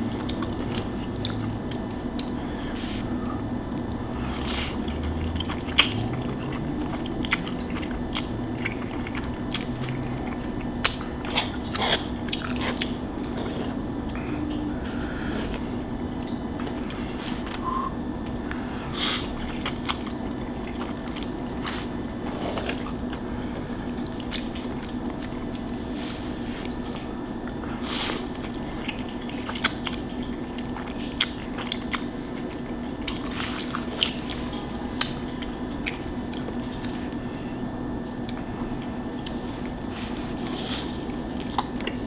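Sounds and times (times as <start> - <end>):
person chewing food: 0.0 - 42.0
steady low hum: 0.0 - 42.0.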